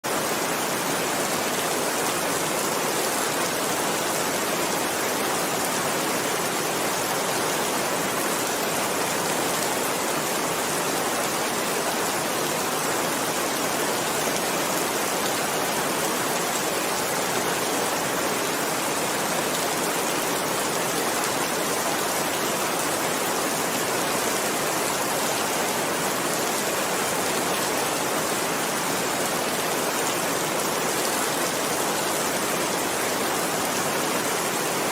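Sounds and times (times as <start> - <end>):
steady rainfall: 0.0 - 34.9.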